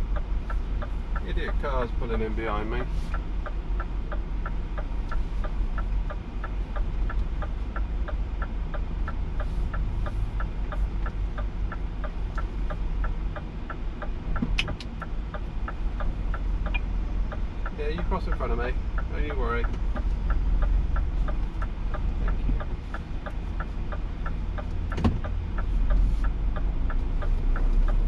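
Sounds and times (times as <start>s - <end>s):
diesel truck engine running: 0.0s - 28.0s
indicator ticking: 0.0s - 28.0s
sharp click: 14.4s - 15.0s.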